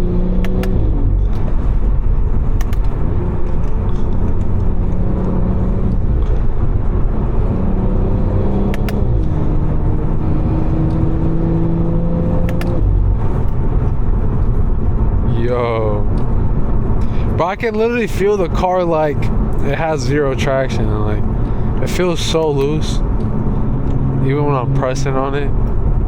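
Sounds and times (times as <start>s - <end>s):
car engine running: 0.0s - 26.0s
road and tyre rumble: 0.0s - 26.0s
brief clicks: 2.6s - 2.9s, 8.7s - 9.3s, 12.4s - 12.8s.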